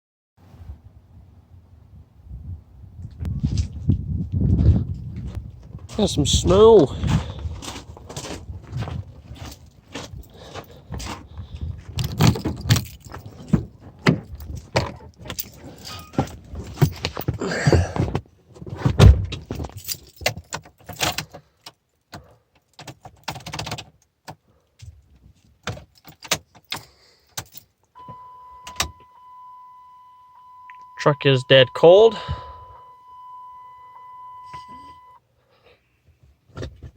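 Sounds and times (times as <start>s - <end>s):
keys jangling: 7.0s - 17.3s, 19.5s - 24.0s, 25.6s - 27.8s
steady electronic chime tone: 28.0s - 35.2s.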